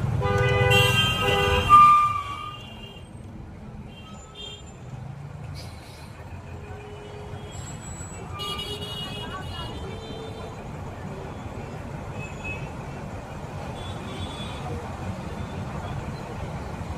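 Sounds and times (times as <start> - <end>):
road traffic noise: 0.0 - 16.9
vehicle horns honking: 0.1 - 3.1, 6.5 - 10.6.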